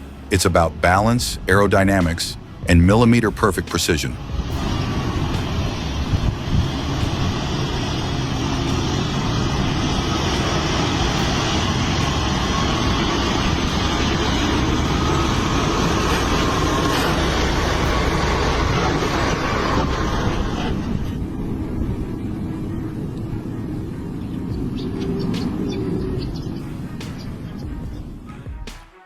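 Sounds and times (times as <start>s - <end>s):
road noise: 0.0s - 28.8s
truck engine rumble: 0.0s - 28.8s.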